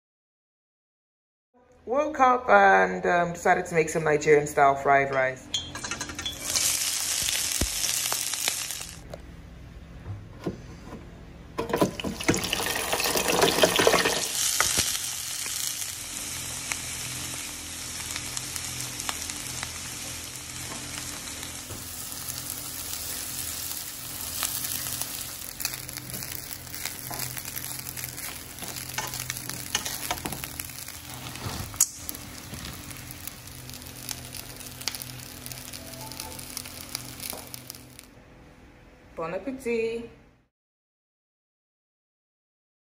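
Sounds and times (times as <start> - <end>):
food sizzling in a wok: 6.3 - 9.0, 12.0 - 38.1
wooden spoon scraping a pan: 28.0 - 33.0.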